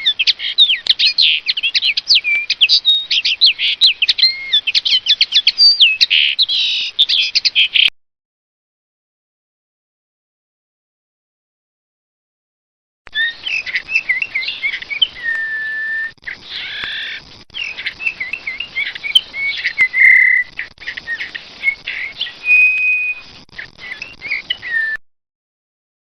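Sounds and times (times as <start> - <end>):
songbird warbling: 0.0 - 7.9, 13.1 - 25.0.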